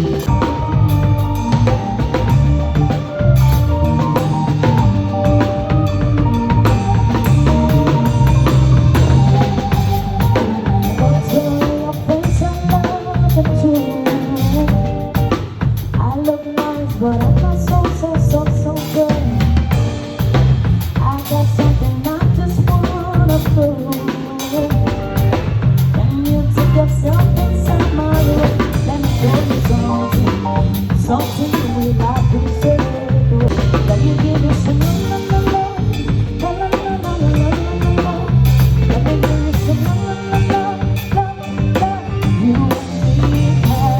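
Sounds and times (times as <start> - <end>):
pitch-bending melody: 0.0 - 15.3
bass line: 0.0 - 43.9
drum kit: 0.0 - 43.9
live band playing: 0.0 - 43.9.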